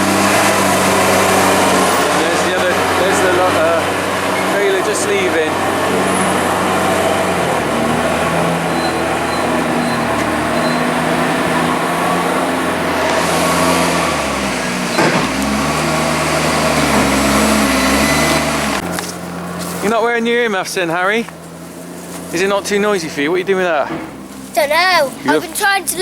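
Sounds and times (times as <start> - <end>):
diesel loader engine: 0.0 - 26.0.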